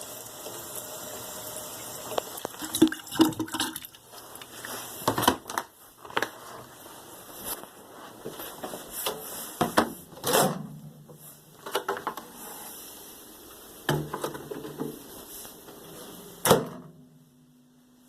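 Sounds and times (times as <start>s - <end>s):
kitchen items knocking and clacking: 2.5s - 4.0s, 13.9s - 15.0s.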